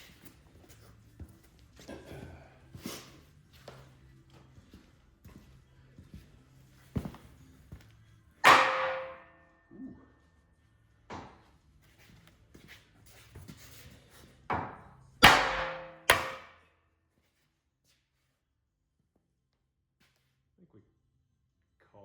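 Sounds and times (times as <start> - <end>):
hammer striking steel: 8.4 - 9.5, 14.6 - 16.6.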